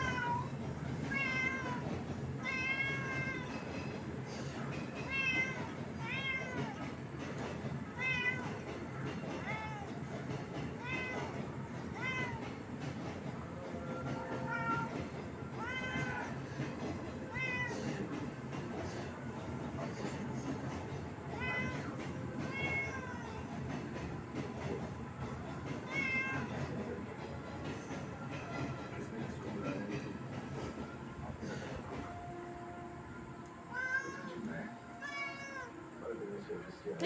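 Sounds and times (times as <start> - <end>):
cat meowing: 0.0 - 1.8, 2.4 - 3.7, 5.0 - 6.8, 7.8 - 8.7, 9.4 - 10.0, 10.7 - 12.5, 15.6 - 16.4, 17.3 - 18.0, 21.3 - 23.5, 25.8 - 26.6, 33.7 - 35.8.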